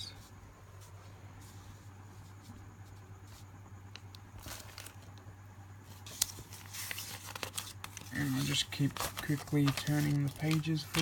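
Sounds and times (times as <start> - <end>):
faint steady hum: 0.0 - 11.0
paper pages rustling: 2.1 - 5.1, 5.8 - 11.0.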